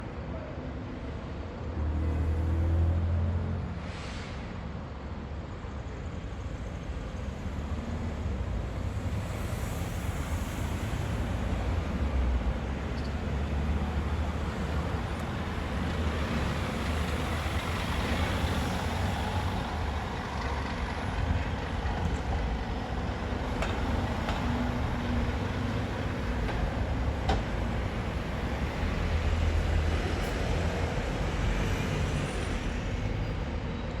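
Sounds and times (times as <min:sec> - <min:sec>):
passing road traffic: 0:01.0 - 0:34.0
bus diesel engine running: 0:13.5 - 0:34.0.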